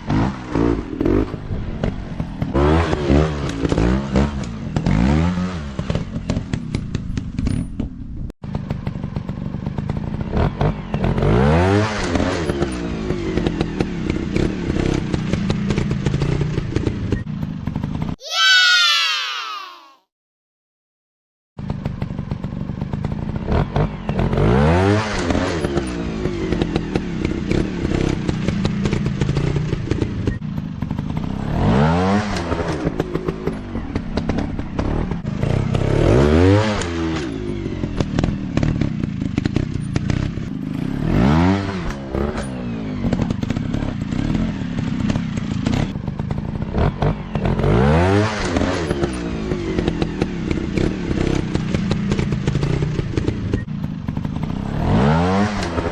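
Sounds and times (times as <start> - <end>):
clatter: 0.0 - 18.2, 21.6 - 55.9
dirt bike engines revving: 31.2 - 55.9.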